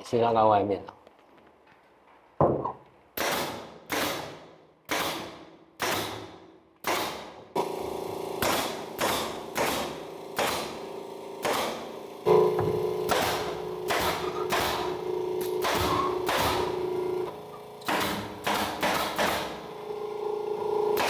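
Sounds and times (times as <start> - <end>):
nail gun firing: 3.2 - 21.0
steady hum: 7.6 - 21.0.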